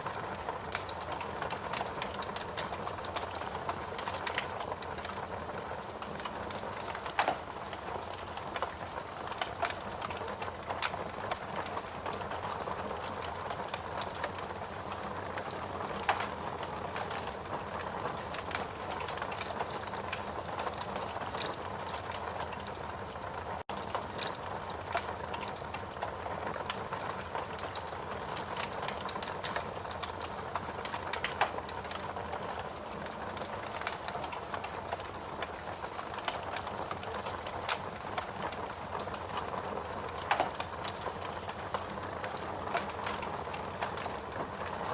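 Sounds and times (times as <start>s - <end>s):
log fire crackling: 0.0s - 44.9s
sharp fire pops: 6.0s - 14.4s.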